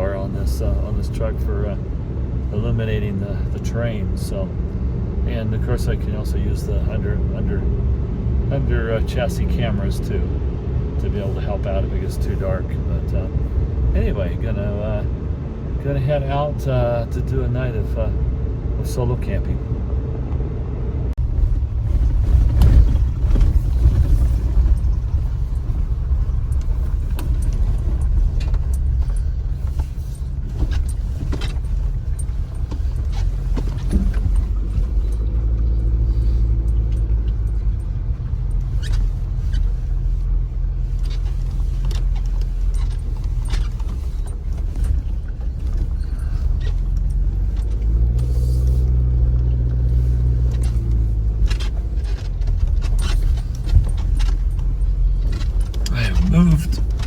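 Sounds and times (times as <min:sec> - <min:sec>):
engine and tyres rumbling: 0:00.0 - 0:57.0
loose gear clicking and rattling: 0:41.0 - 0:57.0.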